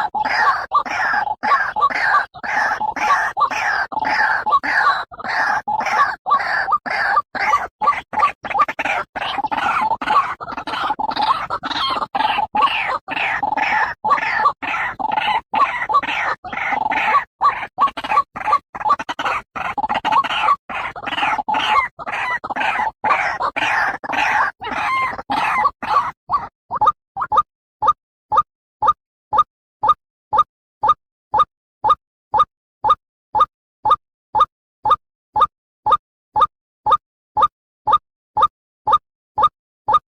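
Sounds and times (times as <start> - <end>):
waterhen harsh croaking: 0.0 - 27.0.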